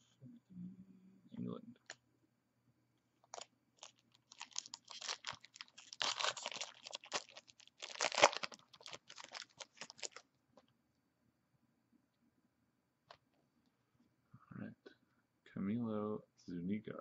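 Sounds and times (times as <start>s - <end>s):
wrapper tearing and crinkling: 3.3s - 10.2s.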